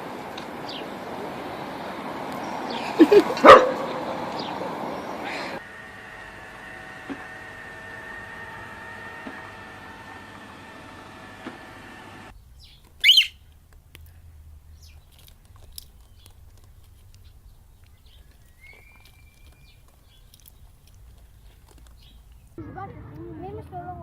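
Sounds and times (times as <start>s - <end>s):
whistled chirp: 12.6s - 13.4s, 18.2s - 19.8s
bird squawk: 12.6s - 13.5s
faint clicks: 12.6s - 22.6s.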